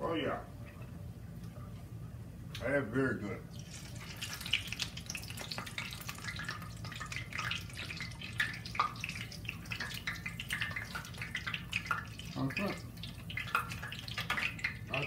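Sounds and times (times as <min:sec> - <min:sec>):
patties sizzling in oil: 0:03.5 - 0:15.0.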